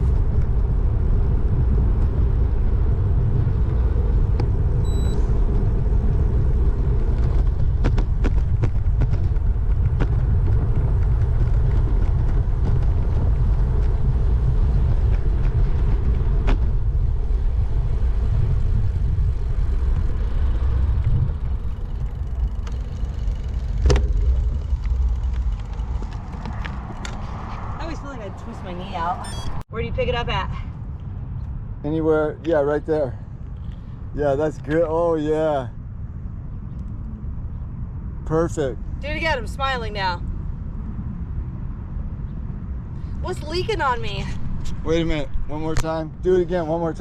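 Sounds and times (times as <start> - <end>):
road noise: 0.0 - 47.0
wind buffeting microphone: 0.0 - 47.0
short high beep: 4.8 - 5.3, 29.2 - 29.6.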